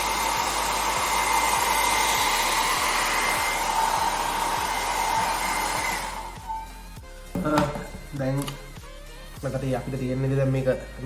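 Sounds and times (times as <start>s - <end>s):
hair dryer running with whine: 0.0s - 8.6s.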